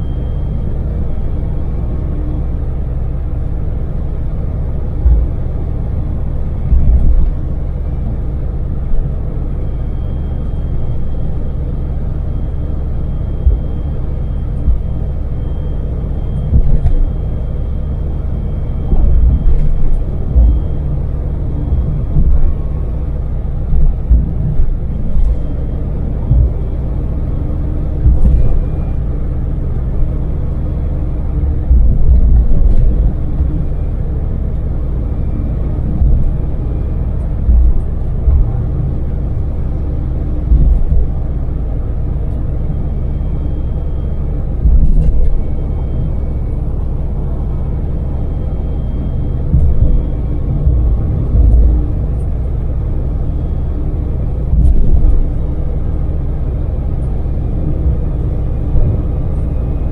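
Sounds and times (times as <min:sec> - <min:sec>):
van engine and road rumble: 0:00.0 - 0:59.9
low thumps: 0:04.9 - 0:06.0, 0:06.6 - 0:07.5, 0:13.4 - 0:15.2, 0:16.4 - 0:17.3, 0:18.8 - 0:33.9, 0:35.2 - 0:42.4, 0:44.4 - 0:46.1, 0:49.3 - 0:53.2.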